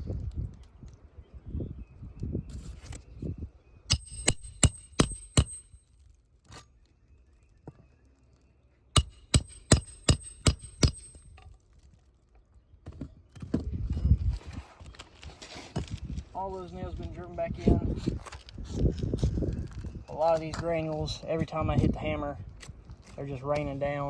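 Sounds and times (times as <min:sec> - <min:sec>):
hammer striking nails: 0:03.9 - 0:05.7, 0:09.0 - 0:11.2.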